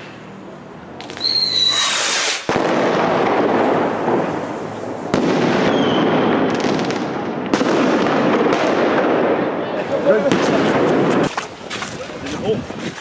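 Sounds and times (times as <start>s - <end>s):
firework whistle: 1.0s - 2.5s, 5.6s - 6.6s
fireworks bangs: 1.0s - 13.0s
rushing hiss: 1.6s - 2.5s.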